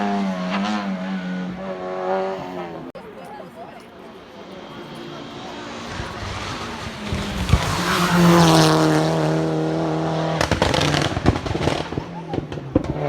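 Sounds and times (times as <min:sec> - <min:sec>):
race car engine: 0:00.0 - 0:13.0
sharp crack: 0:10.3 - 0:13.0.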